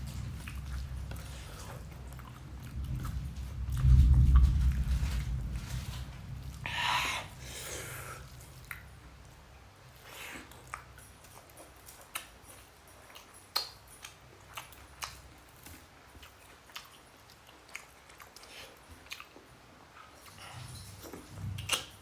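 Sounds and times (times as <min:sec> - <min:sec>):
person chewing food: 0:00.0 - 0:22.0
mouth clicks and smacks: 0:13.2 - 0:15.8.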